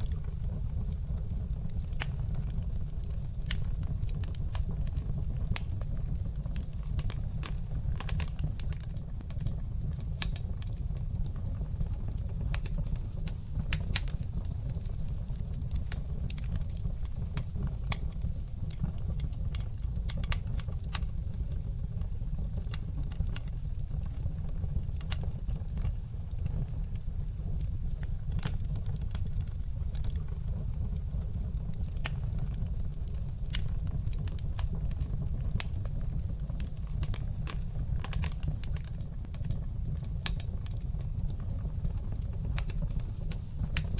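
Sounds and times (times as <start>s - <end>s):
low rumble of flames: 0.0s - 43.9s
wood fire crackling: 0.0s - 43.9s.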